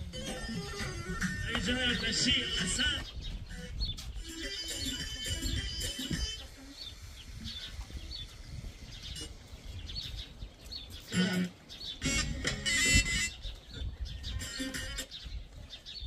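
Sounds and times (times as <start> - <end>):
small birds chirping: 0.0 - 16.0
loud voice: 1.4 - 3.1.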